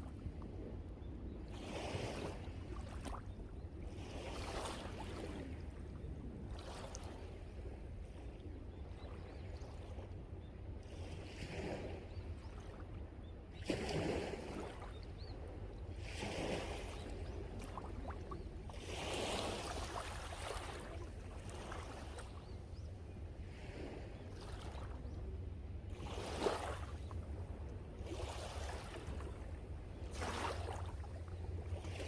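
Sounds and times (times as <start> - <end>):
sea waves breaking on shore: 16.0 - 32.0.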